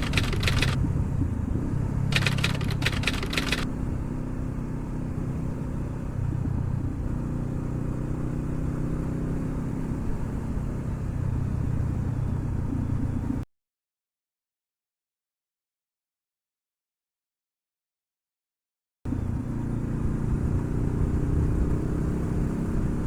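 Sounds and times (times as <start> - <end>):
motorcycle engine idling: 0.0 - 0.8, 2.1 - 3.6
rapid clicking: 0.0 - 0.8, 2.1 - 3.6.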